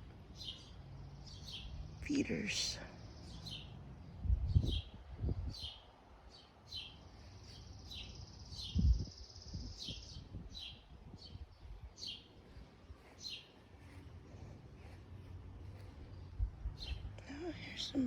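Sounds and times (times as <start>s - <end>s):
songbirds chirping: 0.0s - 18.0s
dull low thumps: 15.6s - 17.2s.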